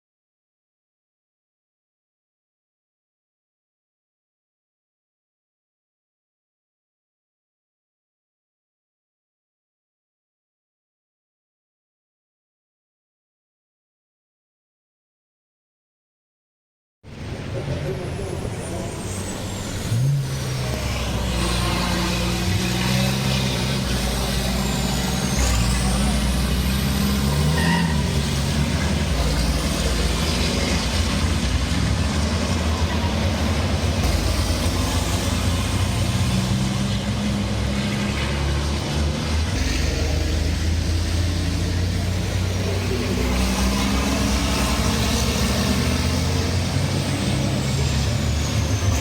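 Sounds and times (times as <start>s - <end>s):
diesel truck engines running: 17.1s - 49.0s.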